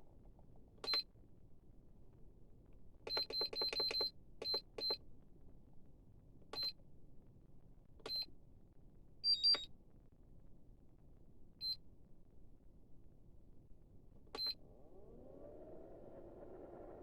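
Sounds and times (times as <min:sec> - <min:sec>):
electronic key beeps: 0:03.1 - 0:05.0, 0:09.2 - 0:09.7.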